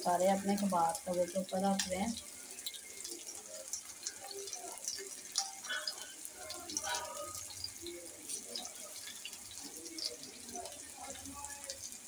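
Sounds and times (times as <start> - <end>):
meat sizzling in hot oil: 0.0 - 12.0
oil crackling and popping: 0.0 - 12.0.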